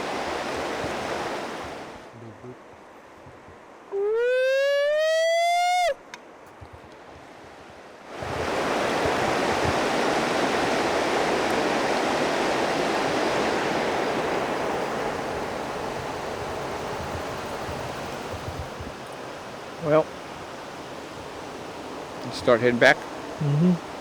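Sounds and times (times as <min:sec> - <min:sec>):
flowing river water: 0:00.0 - 0:02.1, 0:07.2 - 0:24.0.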